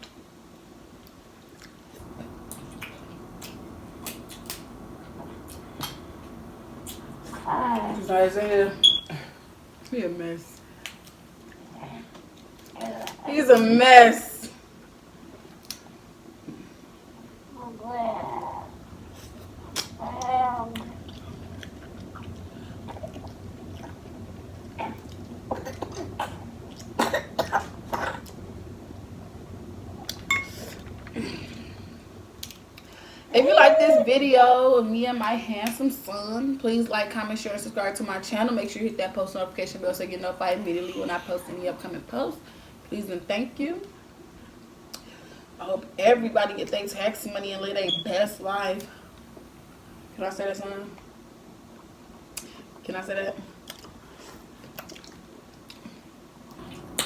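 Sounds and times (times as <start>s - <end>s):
wet chewing clicks and smacks: 1.6s - 7.3s, 19.2s - 27.0s, 53.6s - 57.0s
low steady hum: 2.0s - 57.0s.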